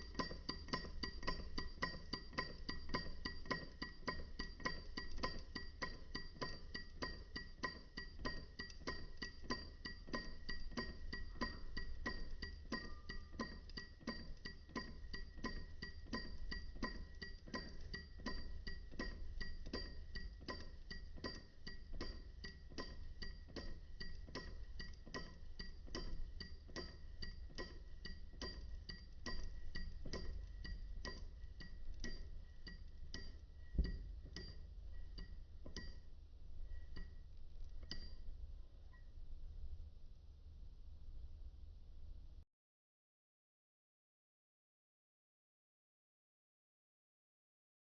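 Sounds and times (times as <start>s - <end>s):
metallic ringing clink: 0.0s - 37.2s.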